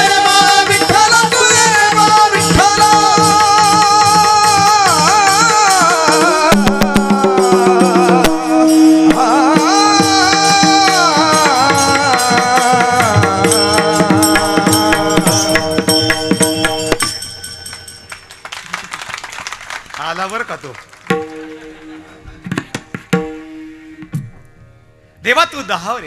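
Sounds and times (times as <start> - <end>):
hand drum: 0.0 - 18.2, 21.1 - 24.4
rattling percussion: 0.0 - 24.5
steady held tones: 0.1 - 18.7.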